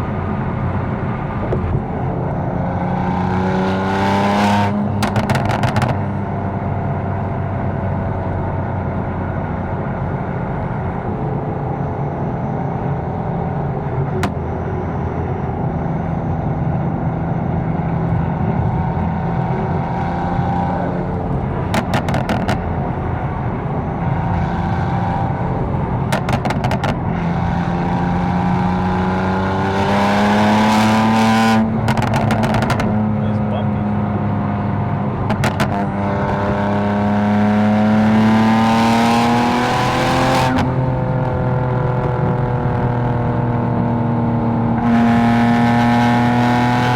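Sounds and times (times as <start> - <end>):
car engine running: 0.0 - 3.7, 7.5 - 29.6.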